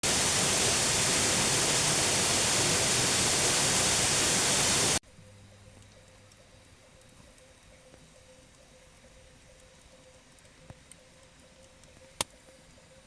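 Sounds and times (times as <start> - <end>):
waterfall roar: 0.0 - 5.0.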